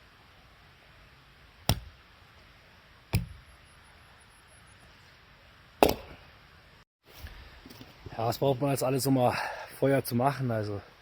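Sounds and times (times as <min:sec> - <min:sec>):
axe chopping wood: 0:01.6 - 0:02.0, 0:03.1 - 0:03.5, 0:05.8 - 0:06.2.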